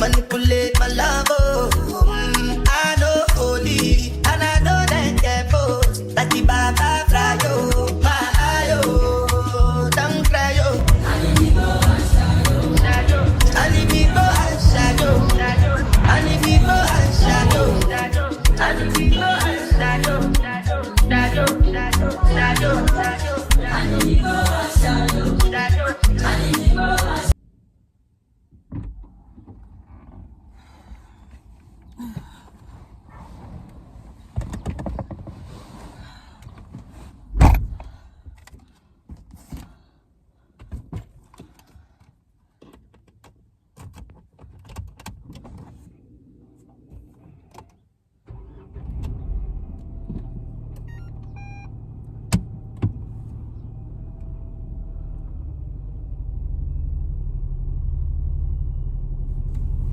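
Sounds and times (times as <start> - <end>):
car engine starting and running: 0.0 - 35.4, 45.0 - 59.9
clicks and knocks inside car: 28.5 - 30.4, 34.3 - 35.5, 40.6 - 45.9.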